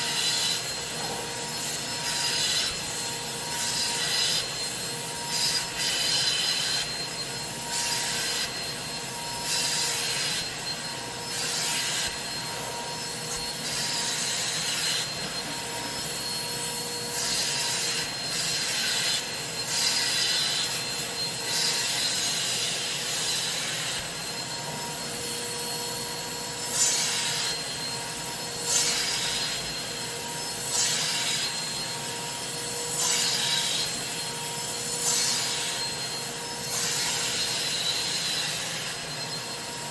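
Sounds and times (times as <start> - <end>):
cleaning tool rubbing fabric: 0.0 - 39.9.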